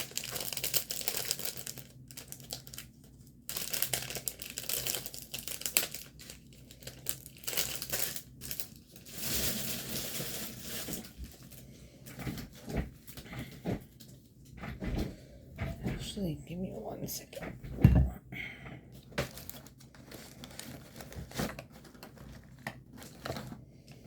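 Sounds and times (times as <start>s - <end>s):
plastic packaging crinkling: 0.0s - 11.7s, 19.0s - 24.0s.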